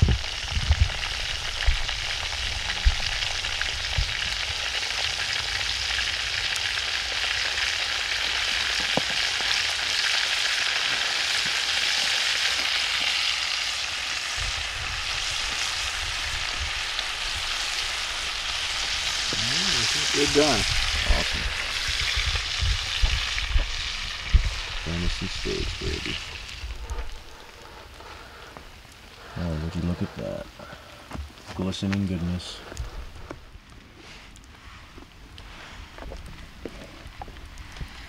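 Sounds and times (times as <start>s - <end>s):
steaks sizzling in a pan: 0.0s - 27.3s.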